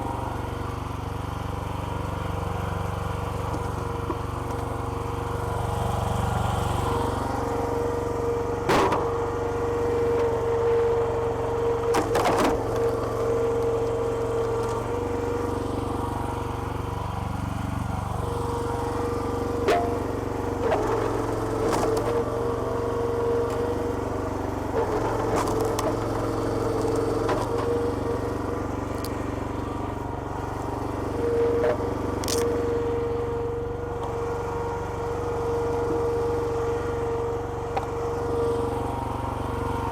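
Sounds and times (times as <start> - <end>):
small petrol engine running: 0.0 - 39.9
logs cracking and splitting: 24.8 - 28.0.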